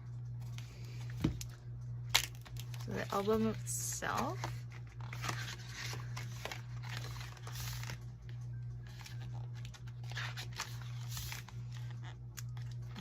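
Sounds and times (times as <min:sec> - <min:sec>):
steady low hum: 0:00.0 - 0:13.0
packaging rustling and crinkling: 0:02.2 - 0:08.1, 0:08.8 - 0:13.0.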